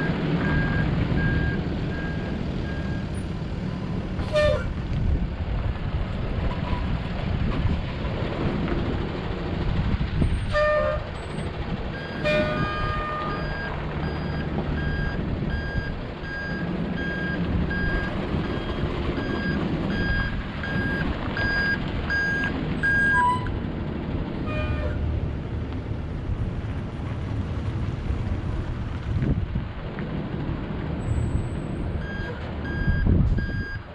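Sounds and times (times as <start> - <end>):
truck reversing alarm beeping: 0.0 - 3.3, 11.2 - 23.5, 31.2 - 33.9
truck engine rumble: 0.0 - 33.9.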